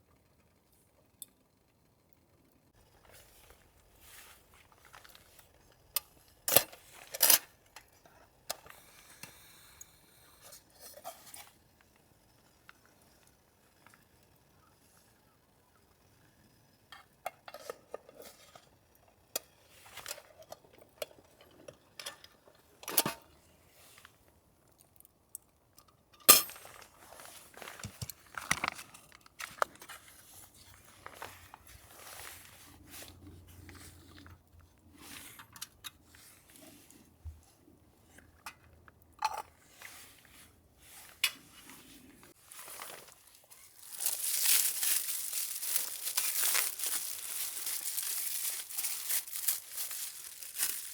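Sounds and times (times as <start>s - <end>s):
plastic wrapper crinkling: 42.5s - 50.9s.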